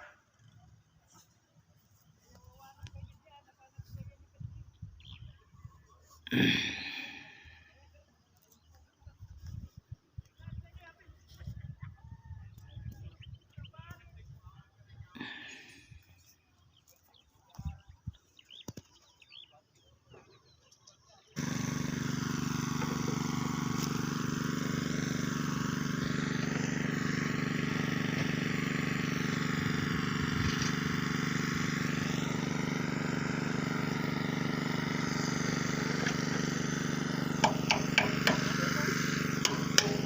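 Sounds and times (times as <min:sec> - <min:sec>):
excavator engine running: 0:06.3 - 0:07.6, 0:21.4 - 0:40.0.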